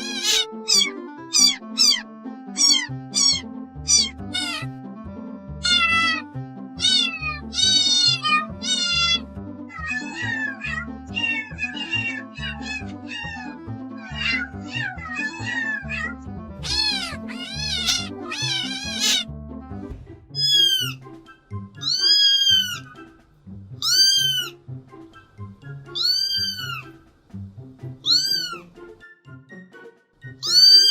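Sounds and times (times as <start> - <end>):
kittens meowing: 0.0 - 4.7, 5.6 - 19.3, 20.4 - 21.0, 21.8 - 23.0, 23.8 - 24.6, 25.9 - 27.0, 28.0 - 28.7, 30.4 - 30.9
background music with steady beat: 0.0 - 14.8, 15.7 - 30.9.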